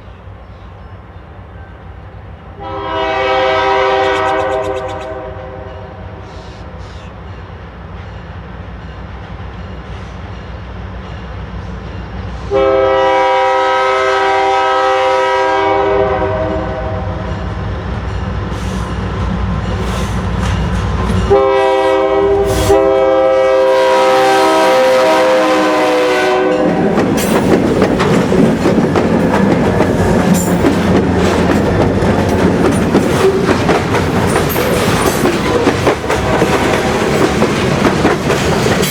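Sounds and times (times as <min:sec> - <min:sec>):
train air horn blasts: 0:02.6 - 0:07.1, 0:12.4 - 0:17.4, 0:21.0 - 0:27.4
locomotive engine rumble: 0:17.7 - 0:38.9.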